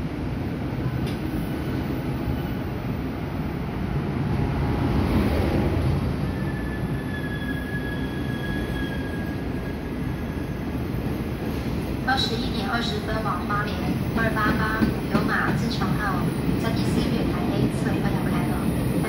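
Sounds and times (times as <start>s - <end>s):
train wheels rumbling on rail: 0.0s - 19.0s
high wheel squeal: 6.3s - 10.6s.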